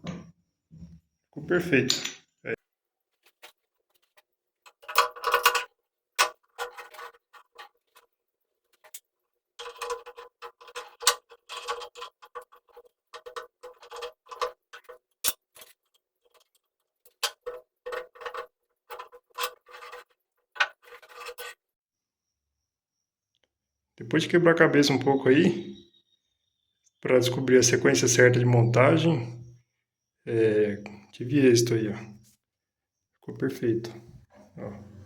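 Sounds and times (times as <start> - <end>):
metal parts clicking and clinking: 4.6 - 8.1, 9.6 - 21.6.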